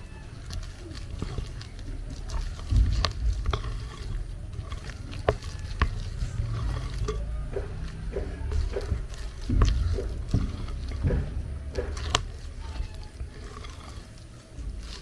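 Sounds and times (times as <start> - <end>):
hand mashing food in a bowl: 0.0 - 15.0
utensil knocking against bowl: 0.5 - 15.0.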